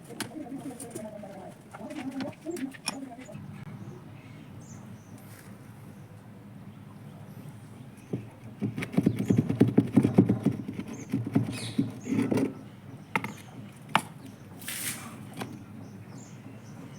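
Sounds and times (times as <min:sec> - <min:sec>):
sharp knocks: 0:08.1 - 0:12.5
short hiss: 0:14.6 - 0:15.2.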